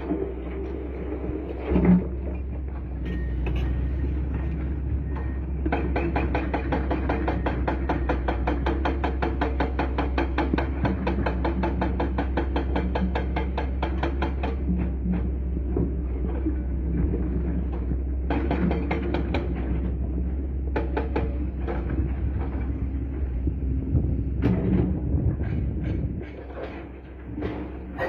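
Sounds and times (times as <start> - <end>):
excavator humming: 0.0 - 28.0.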